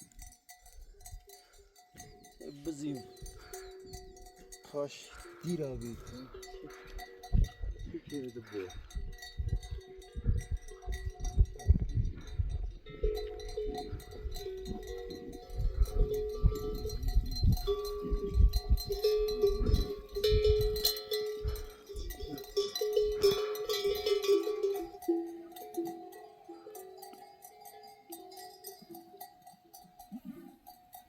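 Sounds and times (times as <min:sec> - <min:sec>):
livestock neck bells clanking: 0:00.0 - 0:31.0
low thumps: 0:07.3 - 0:08.1, 0:08.8 - 0:22.3.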